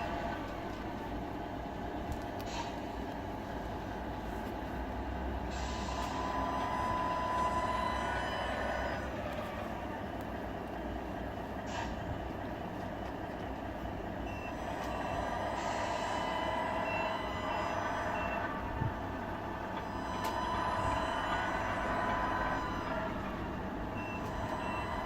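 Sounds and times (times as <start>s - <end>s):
high reversing beeps: 5.6s - 9.1s, 14.2s - 25.0s.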